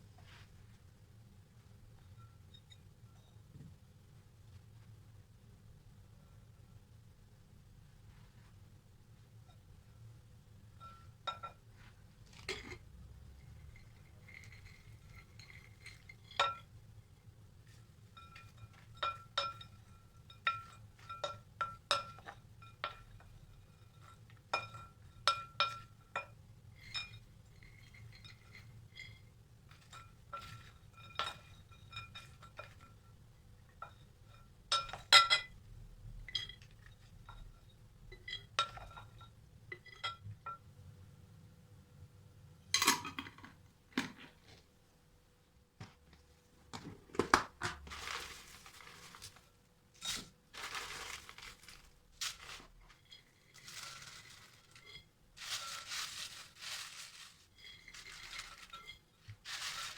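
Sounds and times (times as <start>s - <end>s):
glassware clinking: 13.8s - 16.7s, 18.2s - 33.0s, 33.8s - 35.6s.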